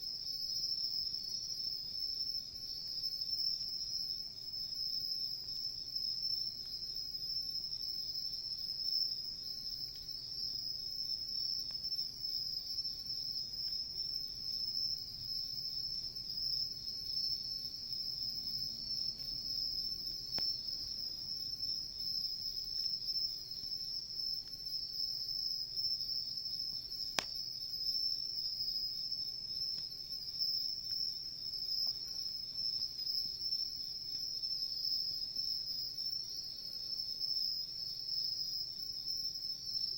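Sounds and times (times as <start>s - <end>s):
crickets chirring: 0.0s - 39.9s
campfire pops: 20.3s - 20.8s, 27.1s - 27.4s.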